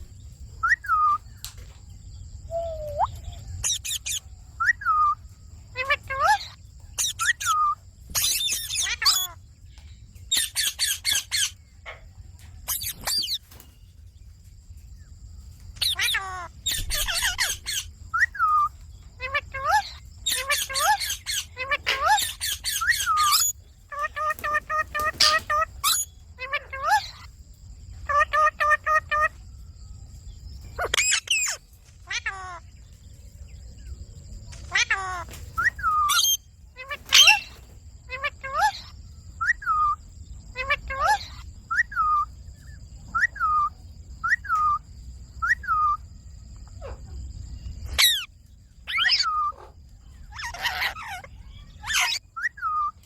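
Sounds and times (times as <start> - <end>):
parakeet chirping: 2.5 - 9.4, 10.3 - 11.6, 12.7 - 13.4, 15.8 - 27.3, 30.8 - 32.7, 34.6 - 40.0, 40.6 - 42.2, 47.8 - 53.0
parakeet squawking: 3.6 - 4.2, 5.8 - 9.4, 15.8 - 27.2, 30.8 - 32.6, 34.6 - 38.9, 47.9 - 48.3, 48.9 - 49.7, 50.3 - 52.9.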